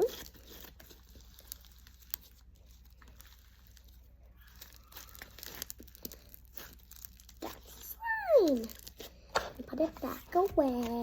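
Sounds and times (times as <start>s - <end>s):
slime pressed and stretched by hand: 0.0s - 11.0s.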